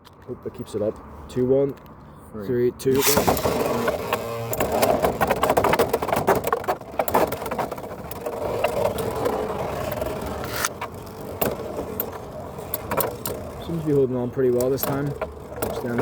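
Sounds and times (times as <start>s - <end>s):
spinning tops whirring: 3.0s - 4.8s.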